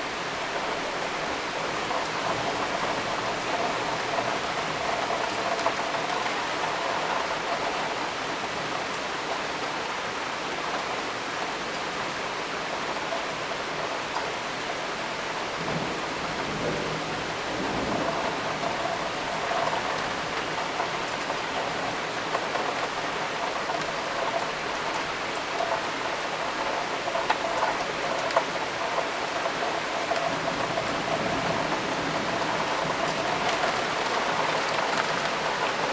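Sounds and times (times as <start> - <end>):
steady rain: 0.0 - 35.9
raindrop ticks: 1.8 - 8.0, 17.7 - 35.9.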